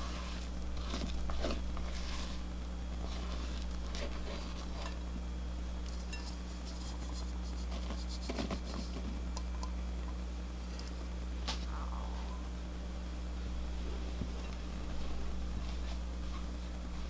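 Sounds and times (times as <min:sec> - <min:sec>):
spatula scraping a mixing bowl: 0:00.0 - 0:05.1
low electrical hum: 0:00.0 - 0:17.0.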